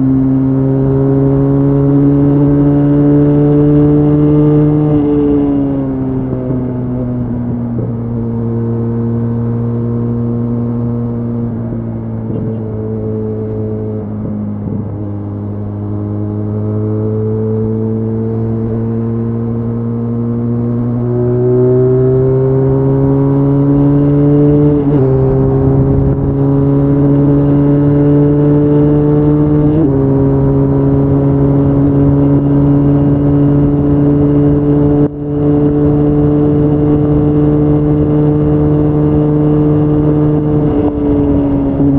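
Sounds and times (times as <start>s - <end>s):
motorcycle engine accelerating: 0.0s - 41.9s
motorcycle gear upshifts: 6.4s - 19.6s.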